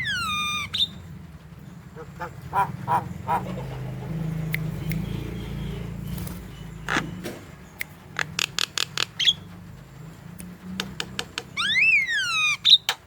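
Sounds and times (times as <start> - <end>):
bird whistle rising and falling: 0.0 - 0.9, 11.5 - 12.9
bird clicks and chirps: 4.1 - 5.4, 6.1 - 9.6, 10.3 - 13.0.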